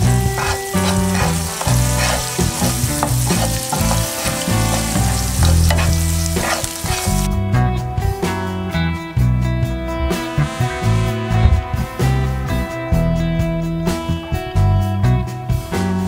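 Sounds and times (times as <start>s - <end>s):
garlic sizzling in hot oil: 0.0s - 7.3s.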